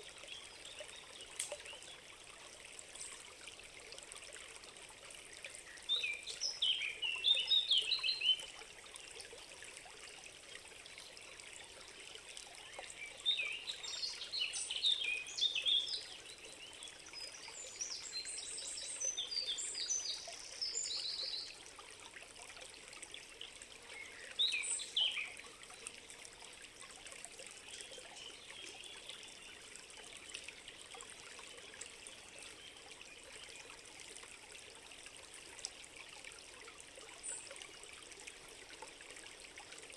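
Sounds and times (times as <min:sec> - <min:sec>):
stream trickling: 0:00.0 - 0:39.9
songbirds chirping: 0:11.7 - 0:21.6, 0:23.7 - 0:26.5, 0:27.5 - 0:33.9.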